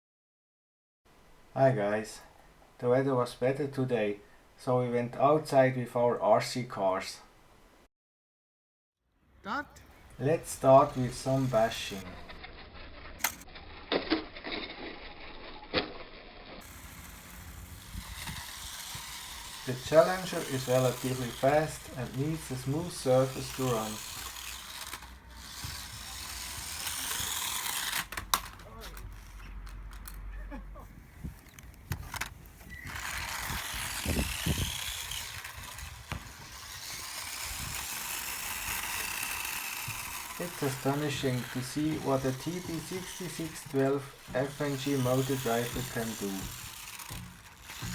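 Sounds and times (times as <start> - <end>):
low steady hiss: 1.1 - 7.9
small electric motor whining: 10.0 - 13.8, 14.7 - 30.2, 31.2 - 47.9
toy cars knocking and clattering: 10.0 - 30.3, 31.4 - 47.9.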